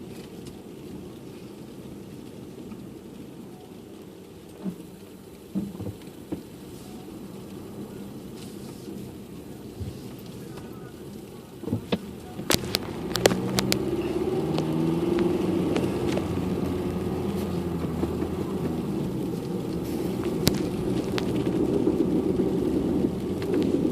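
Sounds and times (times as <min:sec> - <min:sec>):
car engine hum: 0:00.0 - 0:23.9
sharp clicks and knocks: 0:11.6 - 0:16.3.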